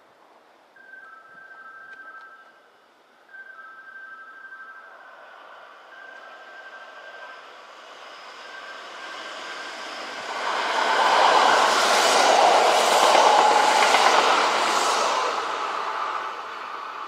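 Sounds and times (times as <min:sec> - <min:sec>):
electric train passing: 0:03.8 - 0:17.0.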